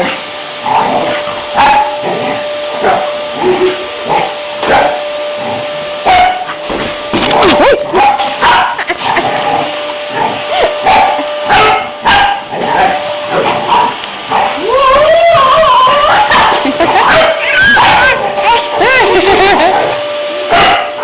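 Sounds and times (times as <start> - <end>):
vacuum cleaner motor humming: 0.0 - 21.0
dog barking excitedly: 1.6 - 2.0, 4.6 - 5.0, 6.0 - 6.5, 7.2 - 9.2, 10.5 - 14.6, 15.3 - 19.9, 20.5 - 21.0
dog yelping and whining: 7.3 - 8.9, 10.5 - 19.9.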